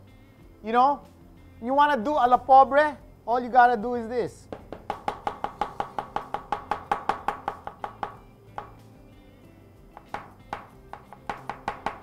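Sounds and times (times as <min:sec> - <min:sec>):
faint background music: 0:00.0 - 0:12.0
knife chopping on cutting board: 0:10.0 - 0:12.0.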